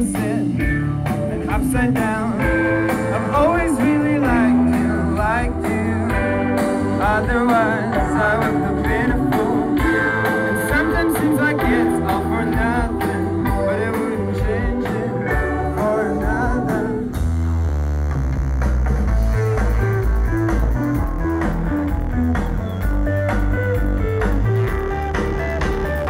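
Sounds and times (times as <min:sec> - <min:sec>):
rock song with vocals: 0:00.0 - 0:17.8, 0:19.0 - 0:26.0.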